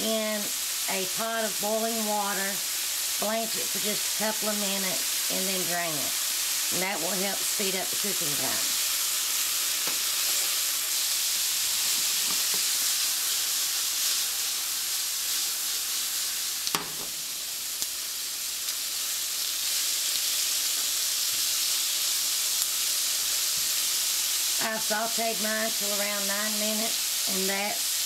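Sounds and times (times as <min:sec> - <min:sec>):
vegetables sizzling in a frying pan: 0:00.0 - 0:28.0
sharp knock: 0:16.7 - 0:17.1.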